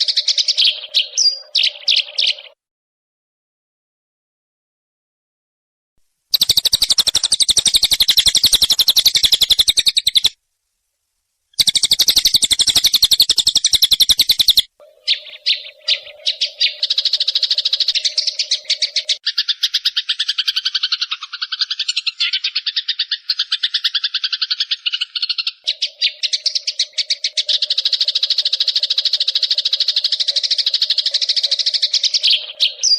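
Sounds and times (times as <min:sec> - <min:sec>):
sparrows chattering: 0:00.0 - 0:02.6, 0:06.3 - 0:10.4, 0:11.6 - 0:32.9.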